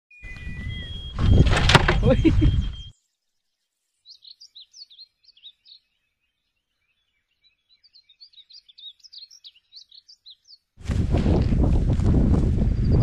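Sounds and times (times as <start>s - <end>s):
bird chirping and trilling: 0.1s - 3.1s, 4.0s - 10.7s.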